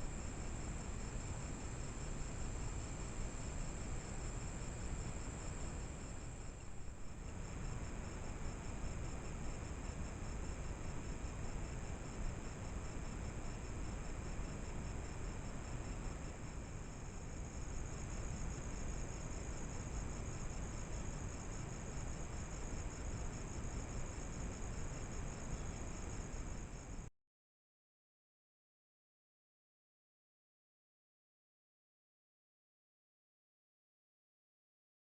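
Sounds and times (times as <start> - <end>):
insects chirping: 0.0 - 27.1
low hiss and rumble: 0.0 - 27.1.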